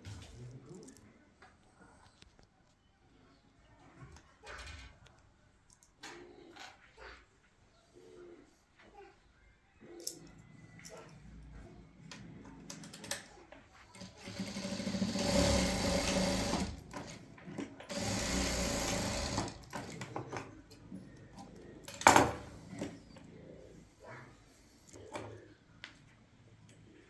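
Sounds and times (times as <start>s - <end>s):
small motor running: 14.3s - 17.1s, 17.9s - 20.0s.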